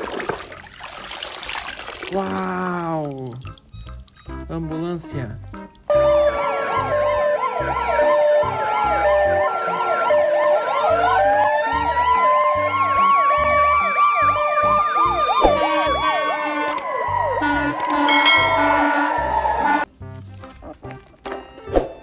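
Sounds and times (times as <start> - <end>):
siren yelp: 5.9 - 19.8
two-tone hi-lo siren: 5.9 - 19.8
siren wail: 5.9 - 19.9.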